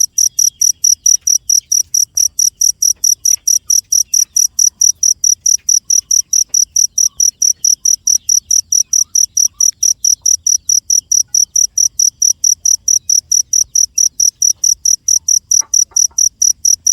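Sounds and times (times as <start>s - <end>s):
cricket chirping: 0.0s - 16.9s.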